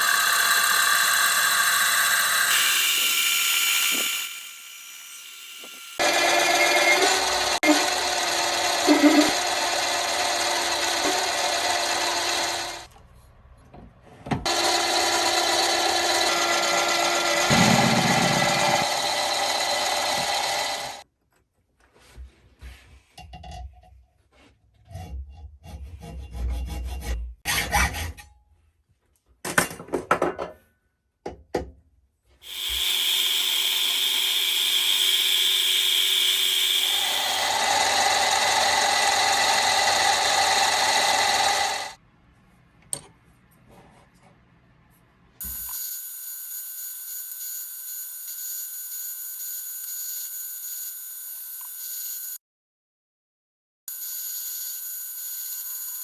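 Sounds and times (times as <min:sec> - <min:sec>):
lathe cutting metal: 0:00.0 - 0:12.9, 0:14.5 - 0:21.0, 0:32.4 - 0:42.0
knocks and scrapes: 0:21.8 - 0:28.2.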